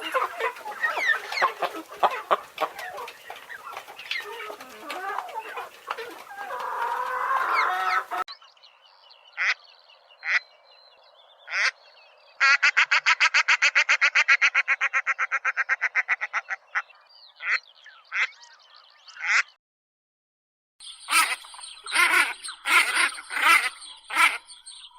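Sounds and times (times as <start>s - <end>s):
ducks or geese calling: 0.0s - 8.3s, 12.4s - 18.4s, 19.1s - 19.5s, 21.0s - 24.9s
hens clucking: 0.0s - 8.3s, 21.1s - 24.6s.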